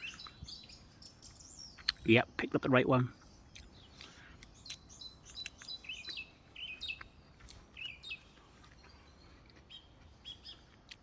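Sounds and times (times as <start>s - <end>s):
birds chirping and twittering: 0.0s - 11.0s.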